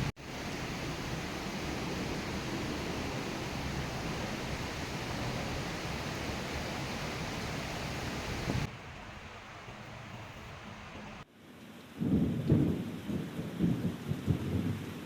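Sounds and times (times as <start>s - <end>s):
heavy rain falling: 0.0s - 11.3s, 12.0s - 15.0s.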